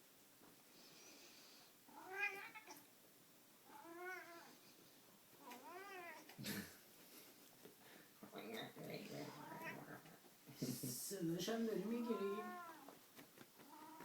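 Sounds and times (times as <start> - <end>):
cat yowling: 1.9 - 2.8, 3.7 - 4.6, 5.4 - 6.2, 12.0 - 12.9.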